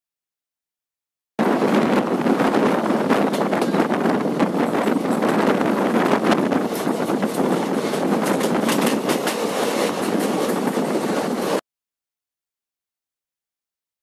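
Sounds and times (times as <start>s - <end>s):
train rushing air and wheel noise: 1.4s - 11.6s.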